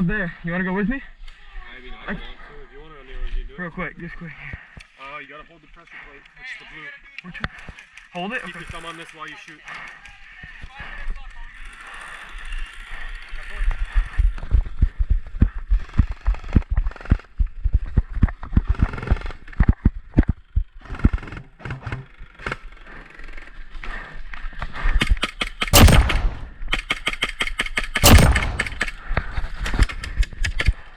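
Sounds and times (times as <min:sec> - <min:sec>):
airsoft gun firing rapid shots: 0:25.8 - 0:26.8, 0:28.0 - 0:28.9.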